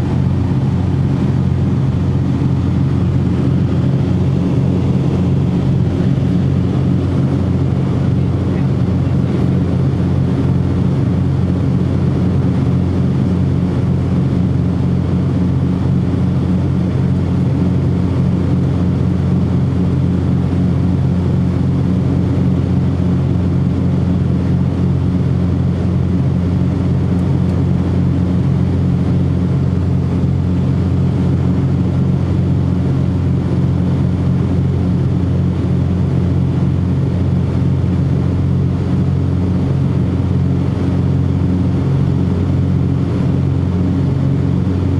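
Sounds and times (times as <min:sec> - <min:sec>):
propeller plane engines droning: 0:00.0 - 0:44.9.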